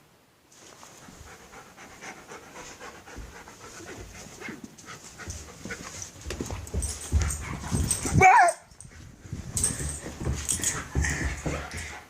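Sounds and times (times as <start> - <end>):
dog panting quickly: 1.0 - 8.1.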